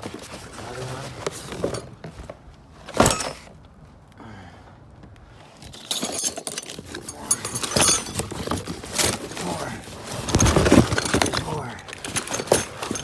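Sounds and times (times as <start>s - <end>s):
metal door hardware rattling: 2.9s - 3.5s, 5.8s - 9.4s, 10.2s - 13.0s.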